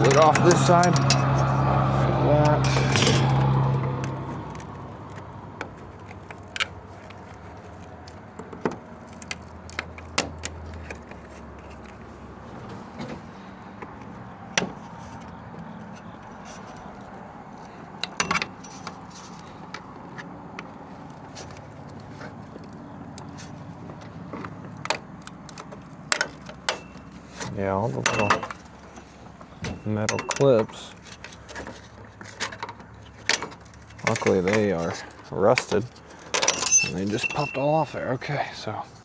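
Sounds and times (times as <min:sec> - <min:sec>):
sharp metal clicks and clinks: 0:24.8 - 0:27.3, 0:28.0 - 0:28.7.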